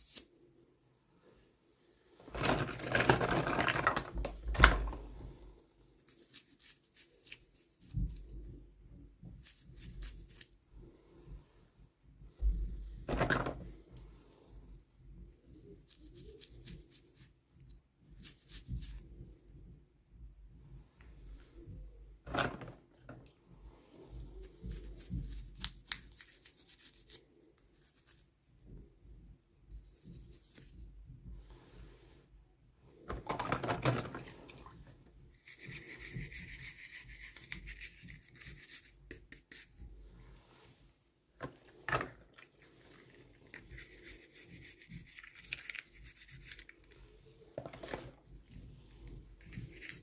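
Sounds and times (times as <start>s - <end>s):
plastic toys and packaging rustling: 2.2s - 5.1s, 13.0s - 13.7s, 22.2s - 23.3s, 33.1s - 39.0s, 41.4s - 50.0s.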